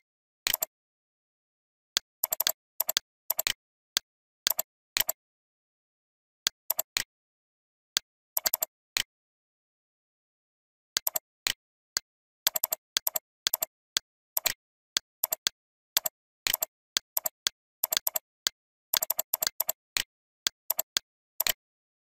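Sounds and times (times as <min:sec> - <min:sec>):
computer mouse clicks: 0:00.5 - 0:00.7, 0:02.2 - 0:03.6, 0:04.5 - 0:05.2, 0:08.4 - 0:09.1, 0:11.0 - 0:11.2, 0:12.5 - 0:13.7, 0:14.4 - 0:14.6, 0:15.2 - 0:20.1, 0:20.7 - 0:21.6.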